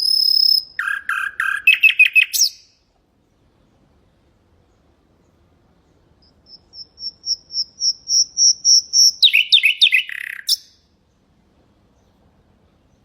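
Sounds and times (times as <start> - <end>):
nightingale singing: 0.0 - 2.8, 4.6 - 11.3.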